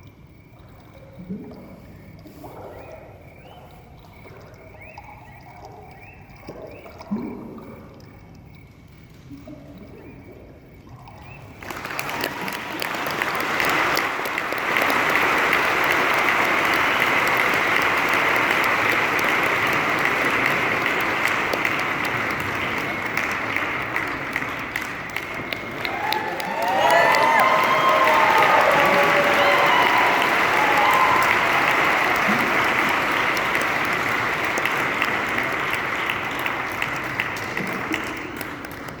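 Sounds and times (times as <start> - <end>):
audience applauding: 11.6 - 39.0.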